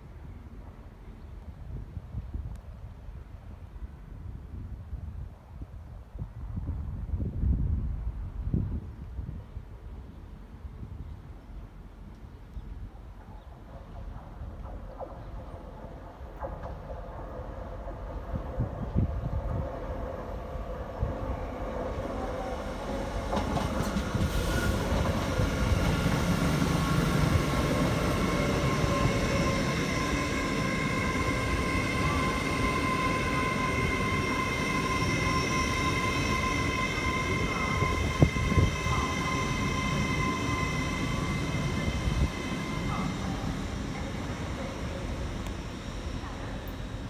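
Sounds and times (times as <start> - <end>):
train wheels rumbling on rails: 11.6 - 47.0
high-pitched squeal: 24.2 - 47.0.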